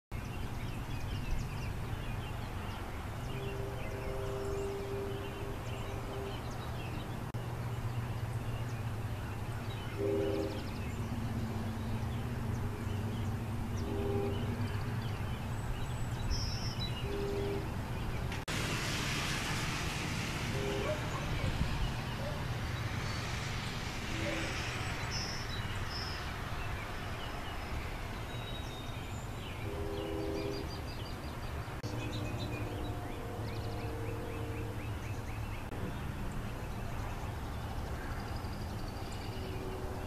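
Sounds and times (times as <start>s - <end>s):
distant train rumble: 0.3s - 40.0s
train horn blasts: 3.2s - 7.0s, 9.8s - 15.1s, 16.9s - 17.9s, 20.2s - 22.4s, 23.9s - 25.6s, 29.6s - 30.9s, 31.8s - 35.1s, 39.3s - 40.0s.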